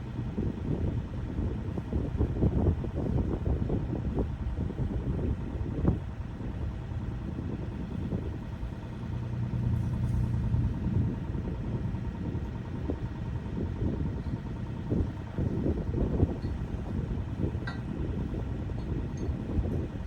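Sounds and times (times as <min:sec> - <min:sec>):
excavator diesel engine running: 0:06.4 - 0:20.0.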